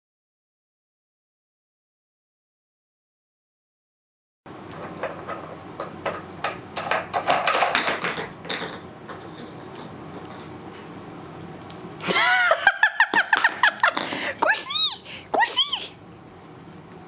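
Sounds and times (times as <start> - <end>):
dog high-pitched vocal sounds: 14.5 - 15.9.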